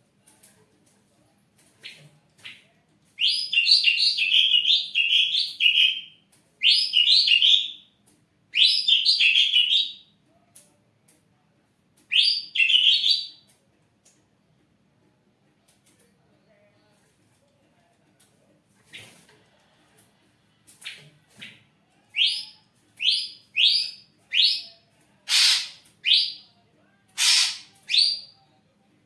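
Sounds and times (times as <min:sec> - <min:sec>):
bird singing repeated notes: 0:27.2 - 0:28.3.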